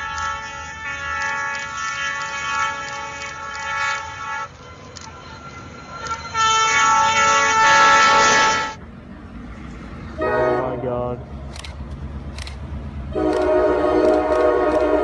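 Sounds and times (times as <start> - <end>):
train horn blasts: 0.0 - 4.9, 5.5 - 8.8, 10.2 - 11.0, 13.1 - 15.0.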